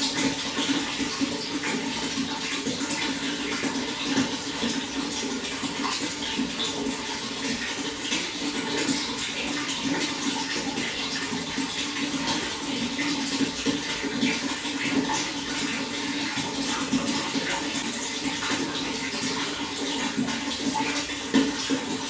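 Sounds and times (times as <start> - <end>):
running water flowing: 0.0 - 22.0.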